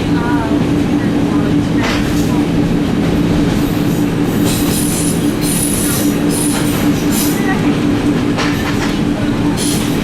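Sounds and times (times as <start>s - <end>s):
electric train humming: 0.0s - 10.0s
wheel squeal on rails: 4.4s - 7.4s.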